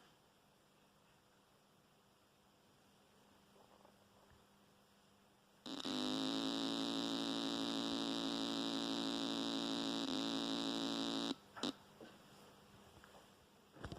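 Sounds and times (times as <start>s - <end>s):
guitar amplifier buzzing: 5.7s - 11.8s.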